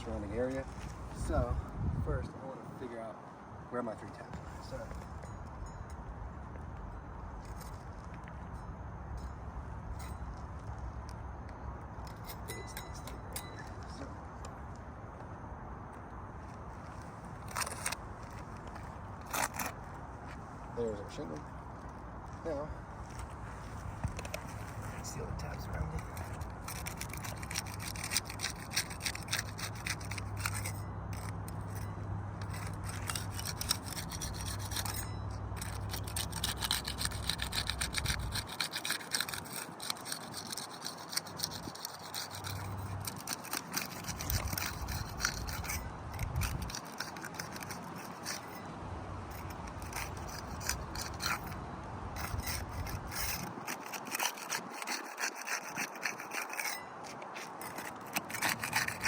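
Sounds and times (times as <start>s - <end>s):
steady low hum: 0.0s - 38.6s
shingles scraping and crackling: 16.4s - 20.7s, 23.0s - 59.0s.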